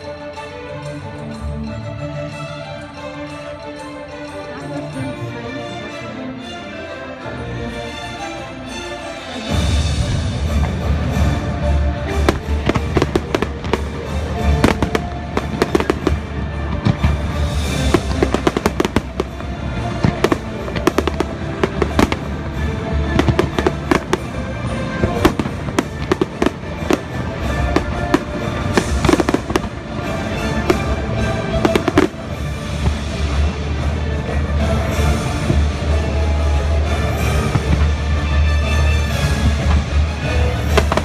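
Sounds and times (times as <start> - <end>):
music: 0.0 - 41.0
fireworks bursting and crackling: 9.9 - 41.0.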